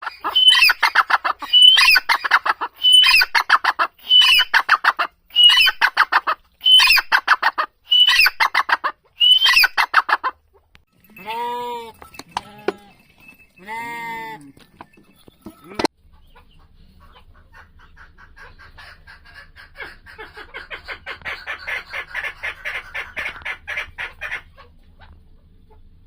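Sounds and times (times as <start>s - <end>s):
bird call with harsh notes: 0.0s - 5.9s, 6.6s - 7.2s, 7.8s - 8.6s, 9.2s - 9.9s
low drawn-out bird calls: 0.0s - 7.2s, 7.8s - 10.0s.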